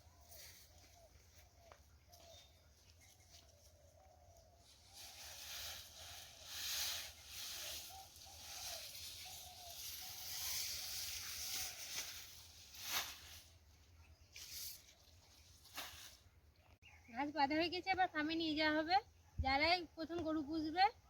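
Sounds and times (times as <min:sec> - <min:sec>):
grass stalks rustling: 0:04.6 - 0:16.3.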